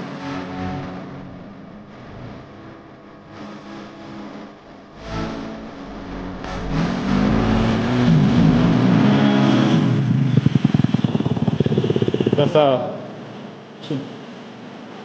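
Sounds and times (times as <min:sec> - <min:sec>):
dirt bike engine revving: 0:05.0 - 0:13.0.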